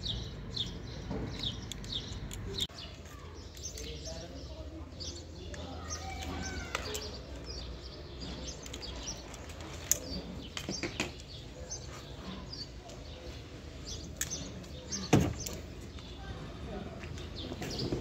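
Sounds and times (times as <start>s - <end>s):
small birds chirping: 0.0s - 18.0s
sharp clicks: 1.2s - 4.1s.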